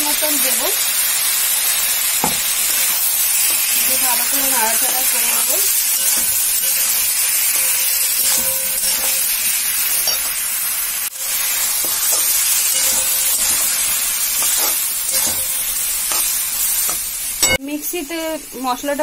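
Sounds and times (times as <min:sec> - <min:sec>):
vegetables sizzling in hot oil: 0:00.0 - 0:19.0
spatula stirring: 0:02.8 - 0:10.4, 0:11.1 - 0:17.6.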